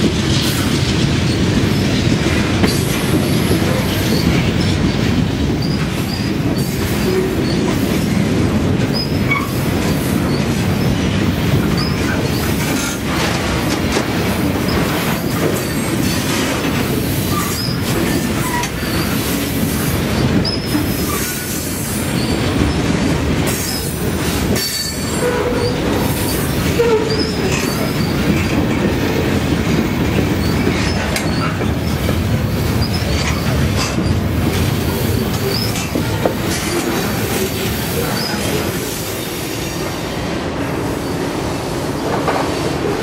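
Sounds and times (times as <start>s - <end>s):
train wheels rumbling on rails: 0.0s - 43.0s
wheel squeals: 24.6s - 28.4s, 30.4s - 31.7s, 32.6s - 34.1s, 35.3s - 35.9s.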